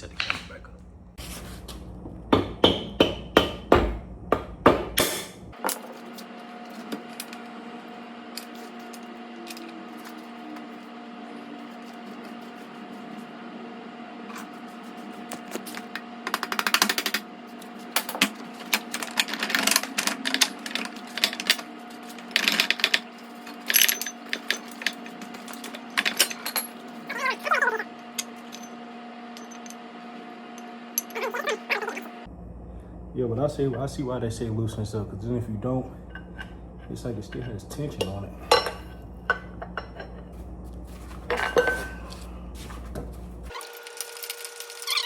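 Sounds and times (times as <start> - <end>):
steady low hum: 0.0 - 43.6
metal tools clinking and knocking: 16.3 - 27.4, 28.2 - 29.8, 31.0 - 31.9, 36.1 - 40.3, 41.1 - 42.3.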